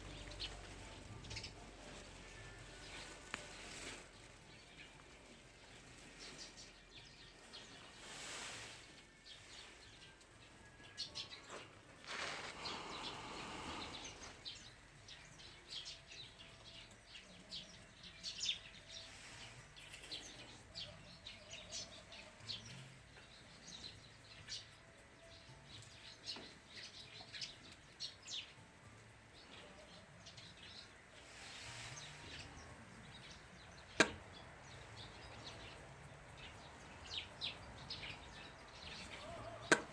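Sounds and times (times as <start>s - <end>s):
birds chirping: 0.0s - 39.9s
rustling: 0.3s - 10.1s, 11.4s - 14.4s.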